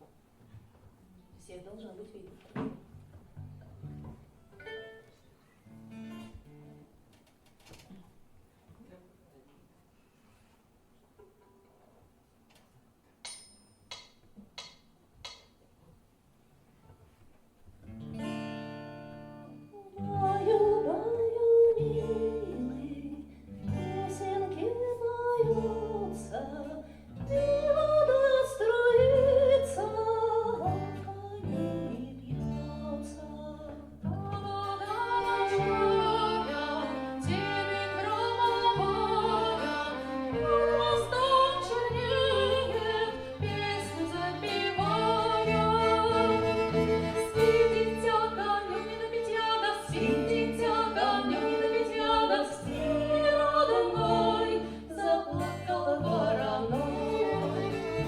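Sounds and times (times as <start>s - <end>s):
bass notes: 29.0s - 58.0s
band playing slow lullaby: 34.8s - 41.6s.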